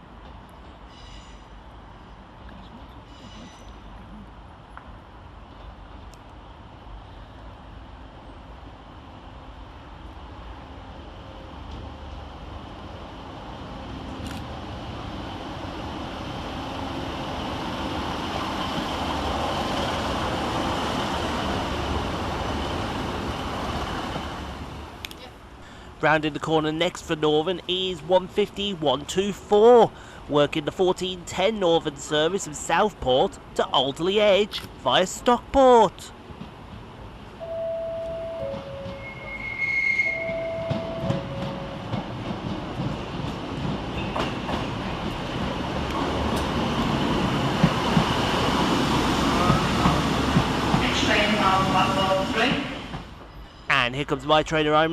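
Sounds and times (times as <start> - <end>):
diesel train engine rumbling: 0.0 - 54.9
two-tone train horn: 37.4 - 41.8
high-pitched wheel squeal: 38.8 - 41.1.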